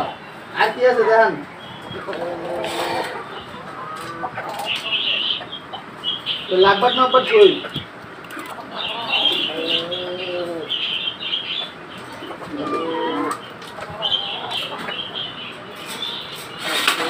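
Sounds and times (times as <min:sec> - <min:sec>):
lower pitched bird calls: 0:00.0 - 0:16.8
caged birds chirping: 0:00.0 - 0:17.0.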